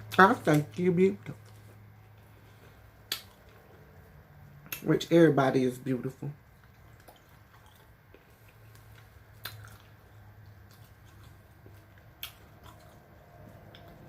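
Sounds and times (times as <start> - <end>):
person chewing food: 0.0 - 4.8, 6.4 - 14.0.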